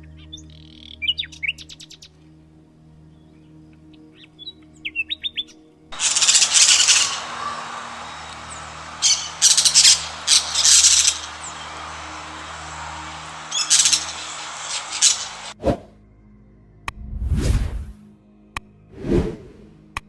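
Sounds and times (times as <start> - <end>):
birds chirping: 6.0 - 15.6
harsh bird calls: 6.0 - 15.6.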